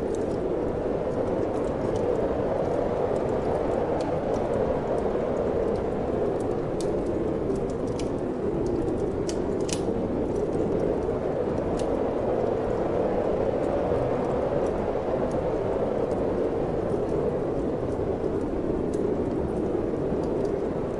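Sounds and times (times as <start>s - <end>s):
wood fire crackling: 0.0s - 20.9s.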